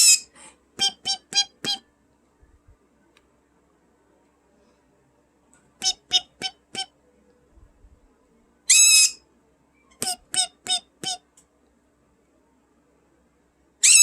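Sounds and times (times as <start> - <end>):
parrot chirps: 0.0 - 1.8, 5.8 - 6.9, 8.7 - 9.2, 9.9 - 11.2
parrot squawking call: 0.0 - 1.8, 5.8 - 6.9, 8.7 - 9.2, 10.0 - 11.2.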